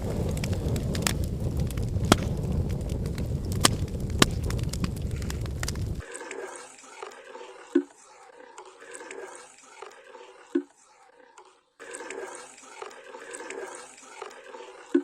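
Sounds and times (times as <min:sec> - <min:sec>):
liquid bubbling and gurgling: 0:11.8 - 0:15.0.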